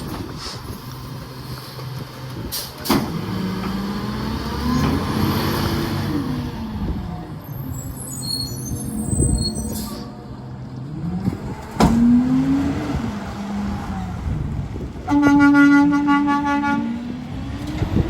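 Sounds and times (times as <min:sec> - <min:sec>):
truck engine revving: 0:02.4 - 0:09.6, 0:10.5 - 0:18.0
vehicle horn blowing: 0:15.1 - 0:17.0.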